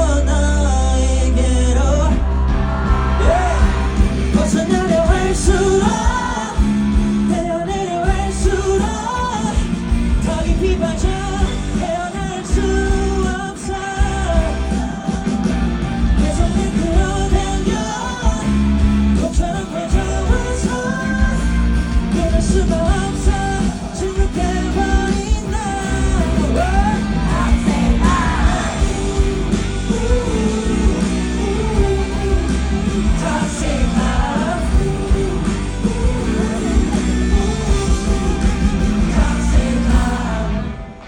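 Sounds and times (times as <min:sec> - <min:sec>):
bass guitar: 0:00.0 - 0:41.0
drums: 0:00.0 - 0:41.0
electric guitar: 0:00.0 - 0:41.0
person singing: 0:00.0 - 0:41.0.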